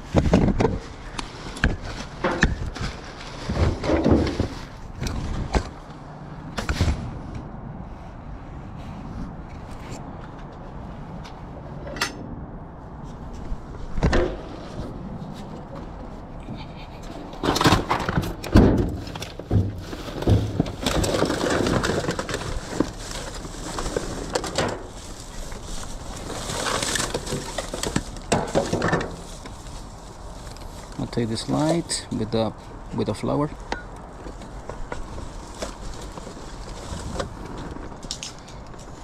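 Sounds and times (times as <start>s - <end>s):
rustling and clattering: 0.0s - 6.0s, 13.0s - 32.8s, 33.6s - 39.0s
knocks and thuds of trash: 1.6s - 5.7s, 17.4s - 23.0s, 26.9s - 29.2s.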